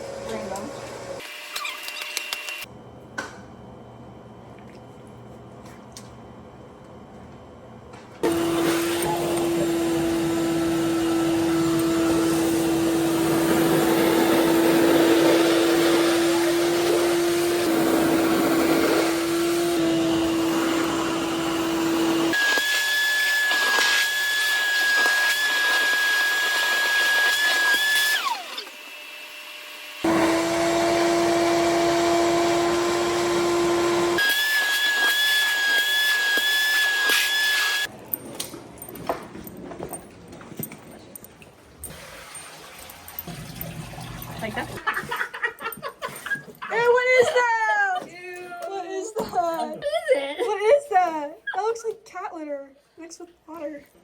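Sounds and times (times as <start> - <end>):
vacuum cleaner motor whining: 0.0 - 2.7, 8.2 - 37.9.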